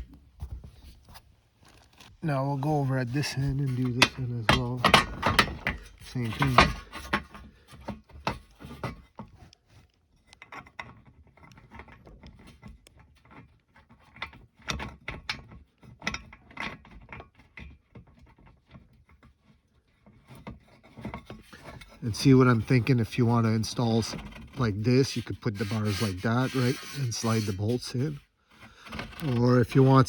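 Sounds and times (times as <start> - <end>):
metal rails clicking and knocking: 3.1 - 7.4, 21.4 - 28.2.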